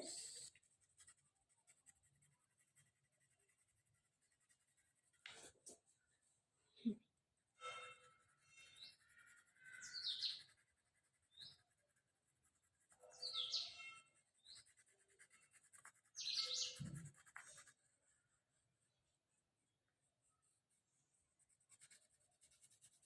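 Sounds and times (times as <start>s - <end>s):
faint scratching on paper: 0.0s - 6.2s, 7.5s - 23.0s
bird chirping: 7.7s - 12.0s, 12.9s - 17.6s.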